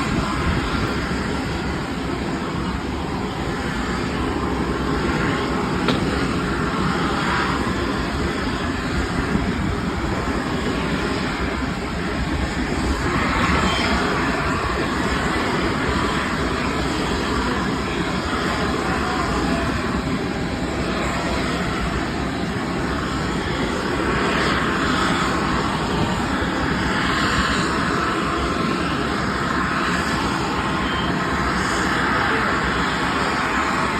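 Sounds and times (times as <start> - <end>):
jet engines running: 0.0 - 33.9.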